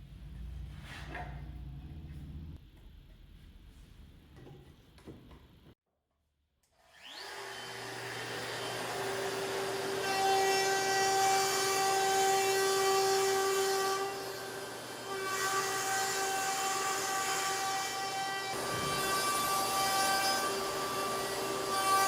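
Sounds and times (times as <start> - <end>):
power tool cutting wood: 6.8 - 22.0
power tool whining: 6.9 - 12.6.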